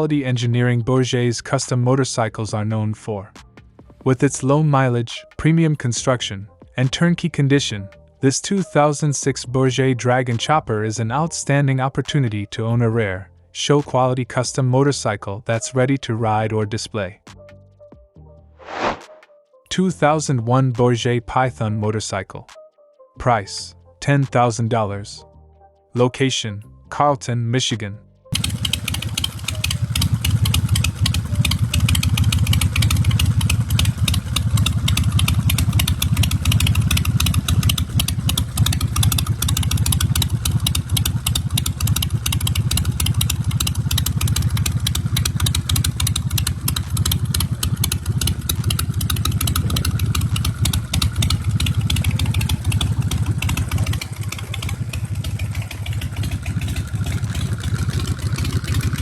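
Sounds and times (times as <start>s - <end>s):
motorcycle engine idling: 28.3s - 59.0s.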